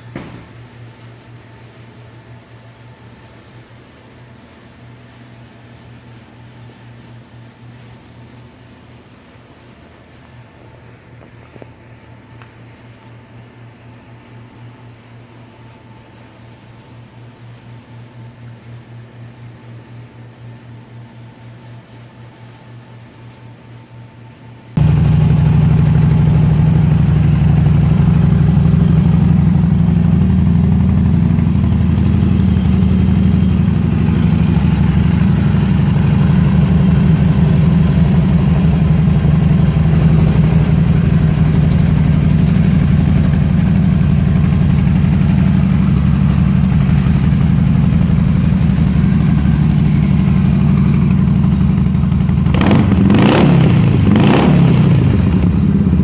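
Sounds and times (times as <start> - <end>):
motorcycle engine idling and revving: 24.8 - 56.0.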